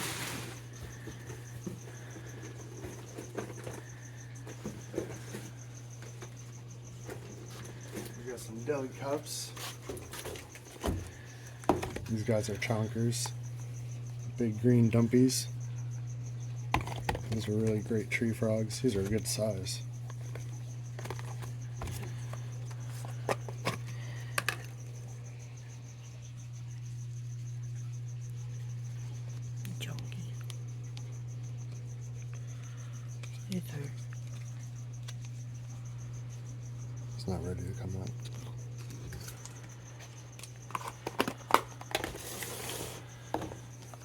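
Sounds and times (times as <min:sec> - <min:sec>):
plastic rustle: 0:00.0 - 0:01.1
steady low hum: 0:00.0 - 0:44.0
plastic cups clicking: 0:16.7 - 0:17.9, 0:20.1 - 0:24.8, 0:40.4 - 0:42.6.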